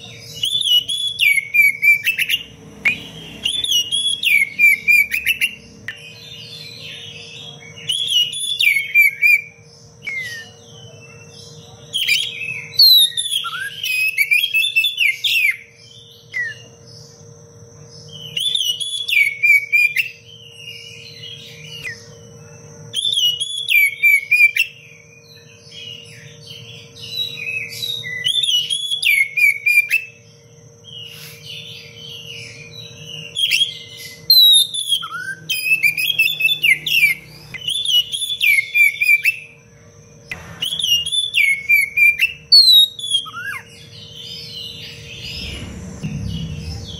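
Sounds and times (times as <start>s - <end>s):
bird singing whistles and chirps: 0.0s - 17.2s, 18.0s - 39.6s, 40.3s - 46.9s
low steady hum: 39.4s - 46.9s.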